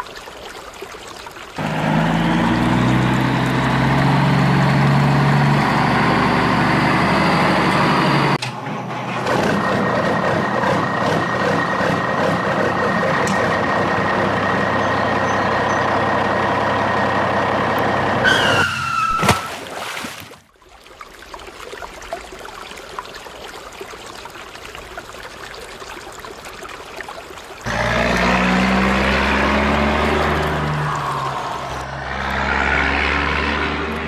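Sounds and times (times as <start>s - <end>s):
vehicle engine running: 1.6s - 18.3s, 27.7s - 34.0s
falling squeal: 18.2s - 19.7s.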